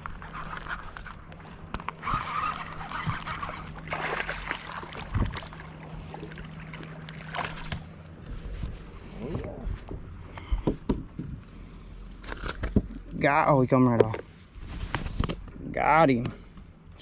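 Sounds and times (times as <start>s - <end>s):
water sloshing against hull: 0.0s - 13.1s
boat motor humming: 0.0s - 17.0s.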